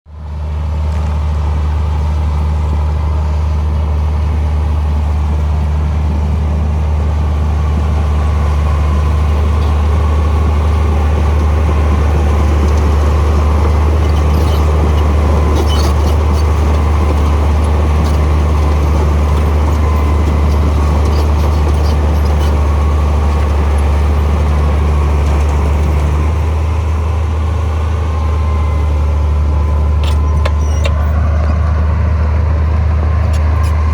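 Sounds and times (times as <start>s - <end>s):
diesel engine droning: 0.1s - 33.9s.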